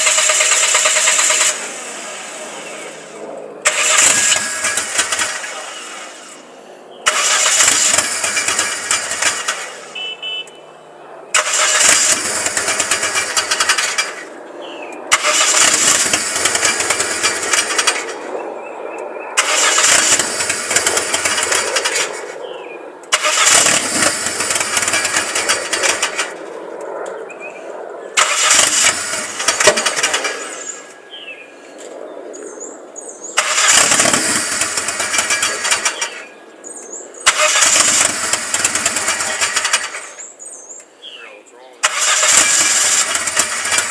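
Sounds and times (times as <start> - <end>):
misfiring car engine revving: 0.0 - 6.4, 7.0 - 10.4, 11.3 - 14.4, 15.1 - 18.2, 19.4 - 22.2, 23.1 - 26.5, 28.2 - 30.9, 33.4 - 36.3, 37.2 - 40.3, 41.8 - 43.9.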